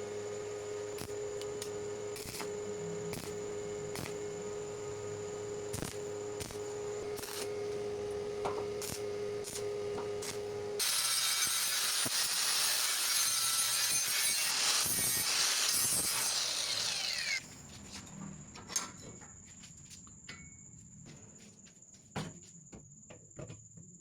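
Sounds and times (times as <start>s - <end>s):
power tool humming: 0.0s - 17.4s
harsh abrasive cutting noise: 8.8s - 17.4s.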